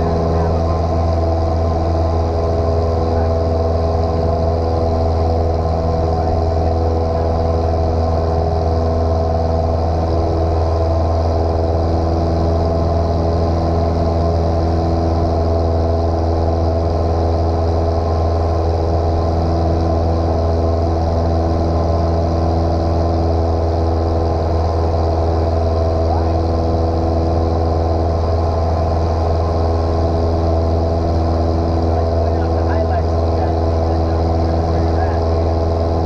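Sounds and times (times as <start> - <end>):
small airplane engine droning: 0.0 - 36.0.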